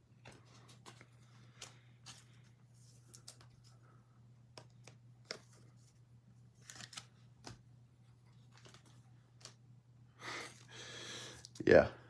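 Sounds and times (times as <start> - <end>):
cards clicking and rustling: 0.2 - 7.6, 8.3 - 9.6.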